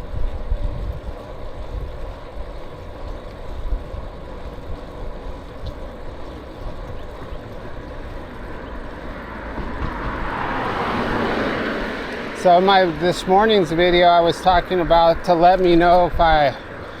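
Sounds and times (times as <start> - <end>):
wind rumbling on microphone: 0.0 - 17.0
vehicle passing by: 5.3 - 17.0.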